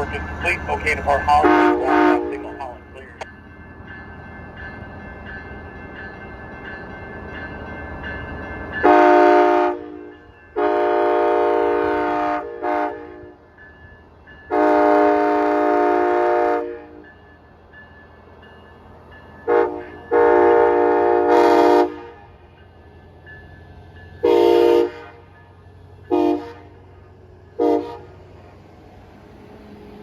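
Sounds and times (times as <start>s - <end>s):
train running rumble: 0.0s - 3.2s.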